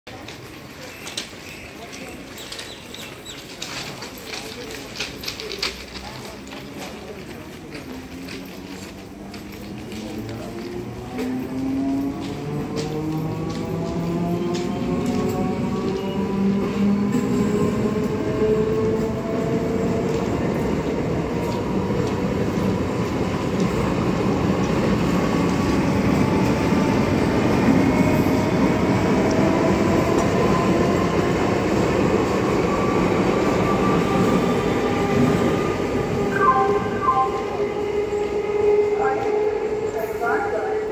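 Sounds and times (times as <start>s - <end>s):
train wheels rumbling on rail: 0.1s - 40.9s
train whine rising in pitch: 32.6s - 40.2s.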